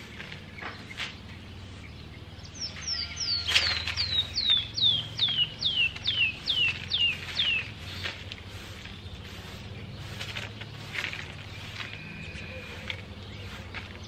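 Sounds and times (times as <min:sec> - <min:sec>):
bird whistling: 0:02.6 - 0:08.1, 0:11.5 - 0:13.6.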